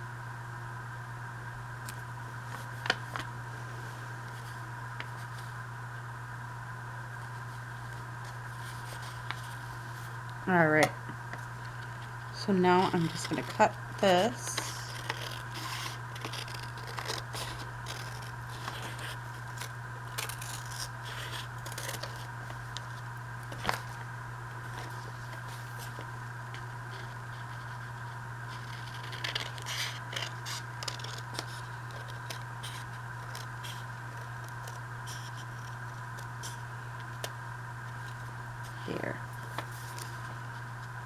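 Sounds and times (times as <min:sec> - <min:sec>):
scissors snipping paper: 0:11.6 - 0:23.9, 0:26.6 - 0:37.4.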